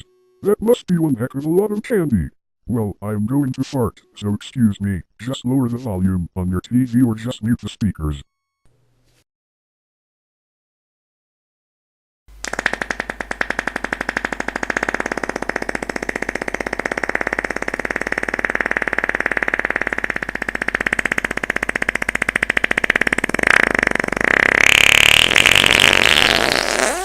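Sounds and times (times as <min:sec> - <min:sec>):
long fart sound effect: 0:12.4 - 0:27.0.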